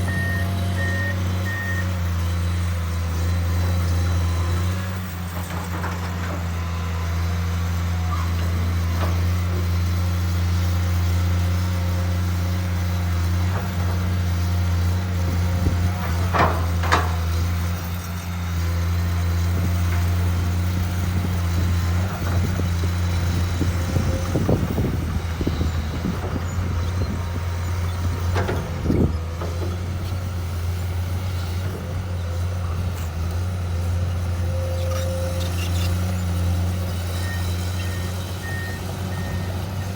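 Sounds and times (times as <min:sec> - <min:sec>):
excavator diesel engine: 0:00.0 - 0:39.9
machine knocks and clanks: 0:16.0 - 0:17.3.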